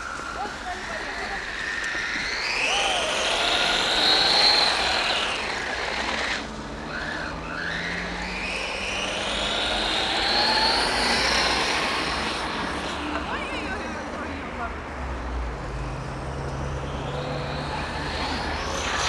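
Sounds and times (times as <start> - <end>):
toy truck motor whining: 0.0 - 13.0, 16.7 - 19.0.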